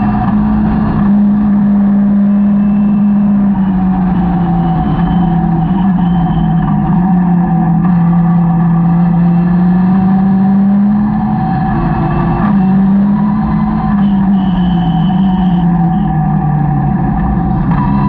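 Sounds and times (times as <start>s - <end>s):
car engine running hard: 0.0s - 18.0s.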